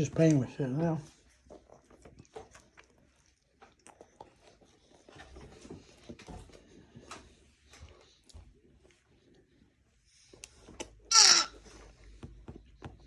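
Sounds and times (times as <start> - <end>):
quiet chewing: 0.1 - 13.0
clicks and taps of food handling: 12.0 - 13.0.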